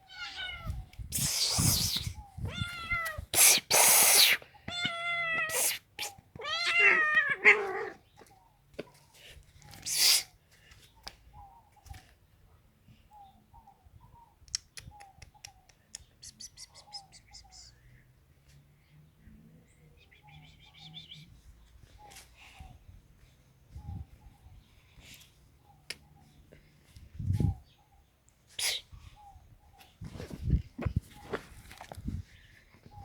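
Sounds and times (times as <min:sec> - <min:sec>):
cat meowing: 0:00.0 - 0:00.8, 0:02.4 - 0:03.3, 0:04.7 - 0:05.7, 0:06.4 - 0:08.0.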